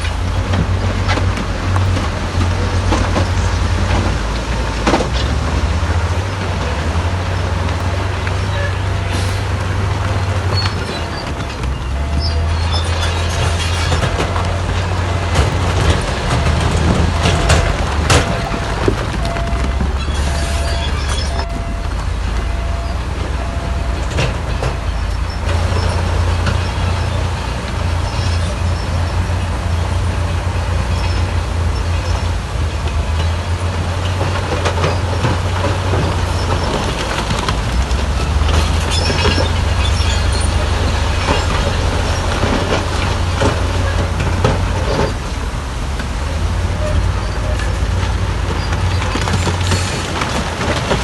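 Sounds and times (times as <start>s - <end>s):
metallic clanking and scraping: 0.0s - 29.1s
diesel engine under load: 0.0s - 51.0s.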